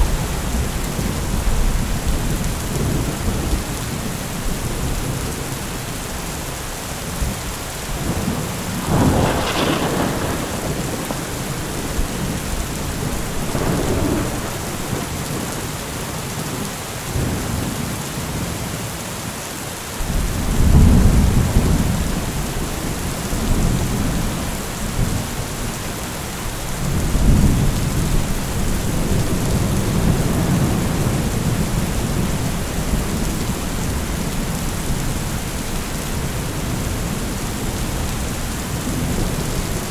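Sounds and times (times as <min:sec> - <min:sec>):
heavy rain falling: 0:00.0 - 0:39.9
deep thunder rumbles: 0:07.2 - 0:15.9, 0:20.0 - 0:39.9
sharp thunder clap: 0:08.0 - 0:15.5.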